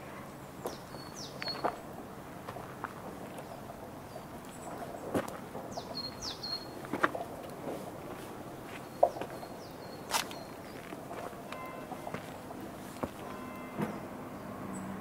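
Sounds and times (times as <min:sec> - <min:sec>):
small birds calling: 0:00.4 - 0:01.9, 0:03.3 - 0:06.9, 0:08.6 - 0:15.0
soft knocks: 0:13.0 - 0:14.0.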